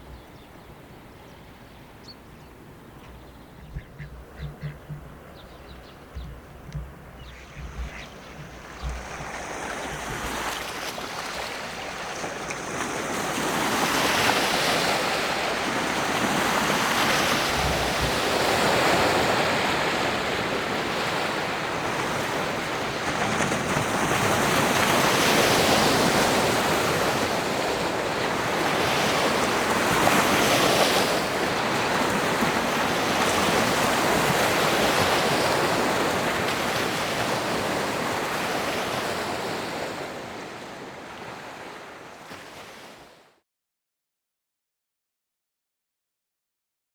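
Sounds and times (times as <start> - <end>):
water waves washing: 3.0 - 41.9.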